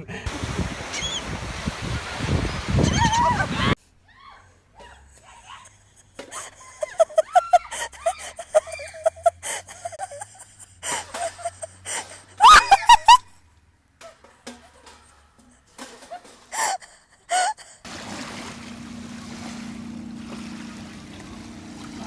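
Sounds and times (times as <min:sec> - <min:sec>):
laughter: 0:04.8 - 0:13.3
shrill cries with gliding pitch: 0:11.2 - 0:13.2.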